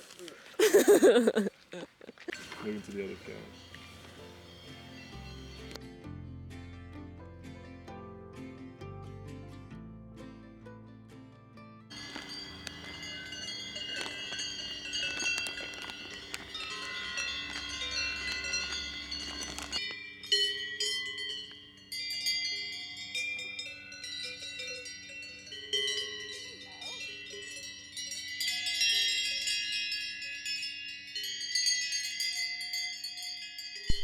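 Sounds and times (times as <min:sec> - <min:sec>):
cowbells clanking: 0:02.3 - 0:05.8, 0:11.9 - 0:34.0.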